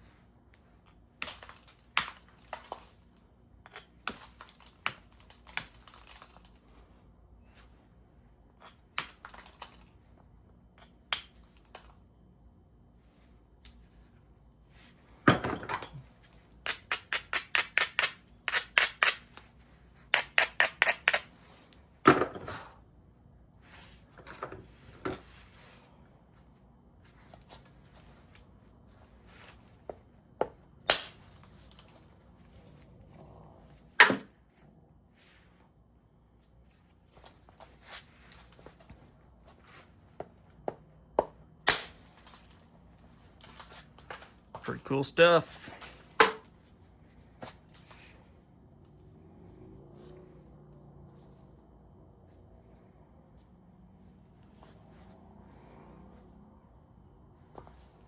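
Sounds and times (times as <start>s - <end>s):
stone striking stone knocks: 16.7s - 19.2s.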